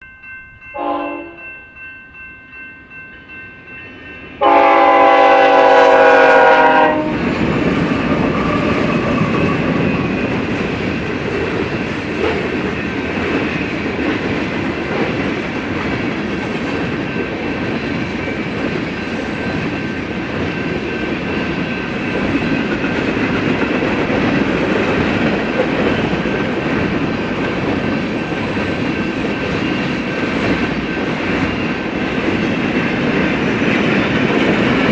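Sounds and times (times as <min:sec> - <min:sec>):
crossing bell ringing: 0:00.0 - 0:34.9
locomotive air horn blasts: 0:00.8 - 0:01.4, 0:04.4 - 0:07.2.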